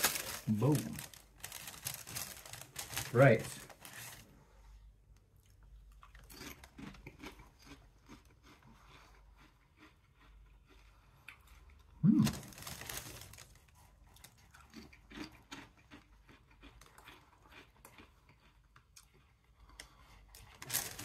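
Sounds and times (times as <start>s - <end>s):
person chewing crunchy crisps: 0.0s - 4.1s, 5.2s - 21.0s.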